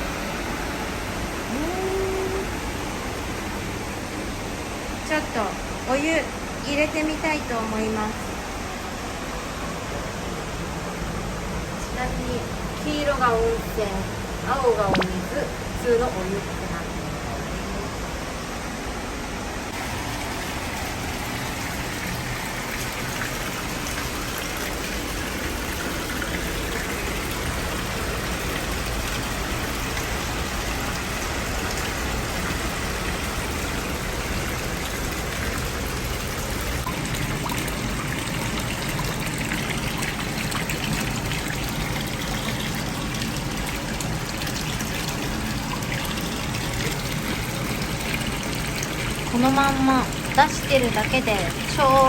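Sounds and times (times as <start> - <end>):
water running from tap into tub: 19.7 - 52.0.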